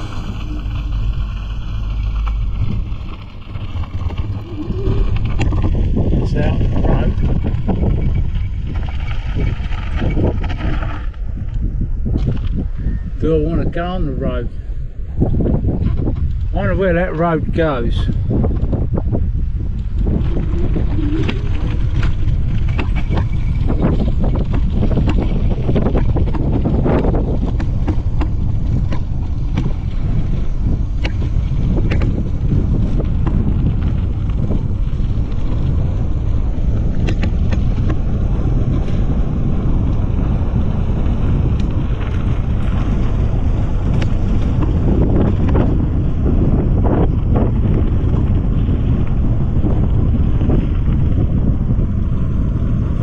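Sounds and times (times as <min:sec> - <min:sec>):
wind buffeting microphone: 0:00.0 - 0:53.0
scattered clicks and knocks: 0:37.0 - 0:38.0.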